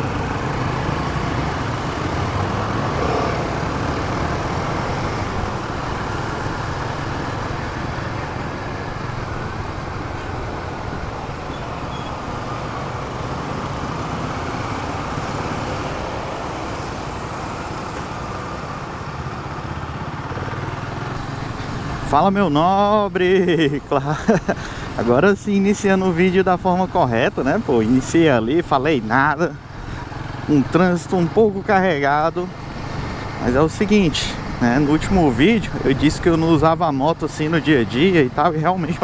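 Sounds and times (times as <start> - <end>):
motorcycle engine running: 0.0 - 22.8
traffic: 0.0 - 39.0.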